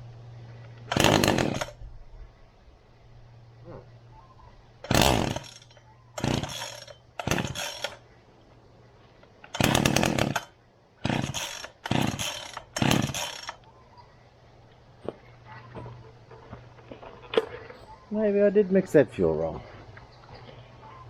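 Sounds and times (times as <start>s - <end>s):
chainsaw engine turning over: 0.7s - 1.8s, 4.8s - 8.0s, 9.5s - 13.6s.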